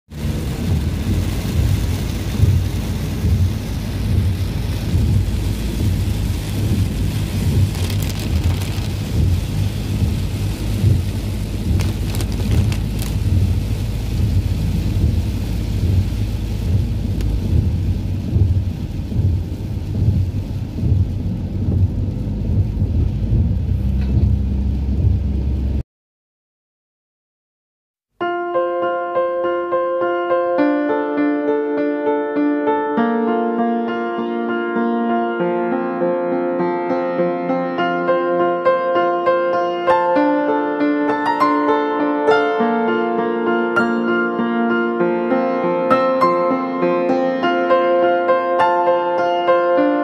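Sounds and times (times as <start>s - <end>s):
deep car rumble: 0.1s - 25.8s
rain hissing on car windscreen: 0.1s - 25.8s.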